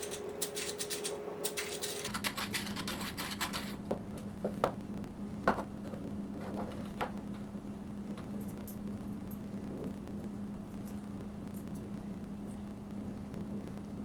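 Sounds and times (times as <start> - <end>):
machine humming: 0.0 - 14.0
plastic clicks and scratches: 0.4 - 3.8.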